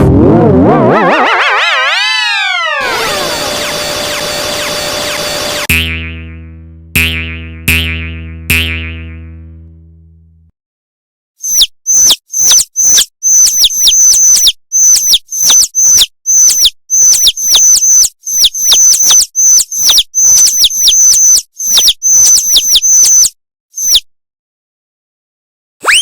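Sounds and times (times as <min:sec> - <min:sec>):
high-pitched chirps: 0:11.4 - 0:24.1.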